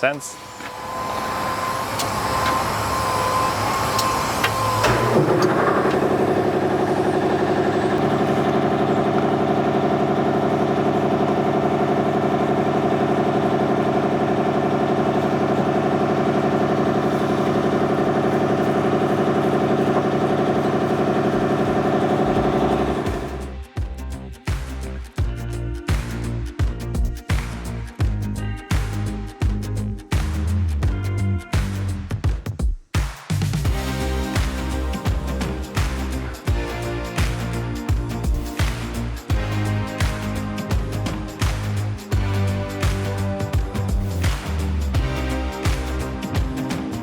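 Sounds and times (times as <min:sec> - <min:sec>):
excavator diesel engine idling: 0:00.0 - 0:23.6.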